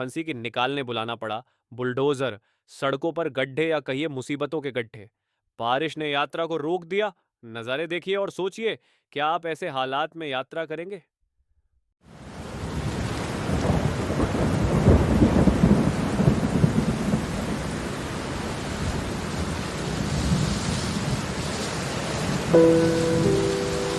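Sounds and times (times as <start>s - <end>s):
heavy rain: 12.2s - 23.9s
thunder rolling: 13.5s - 17.3s.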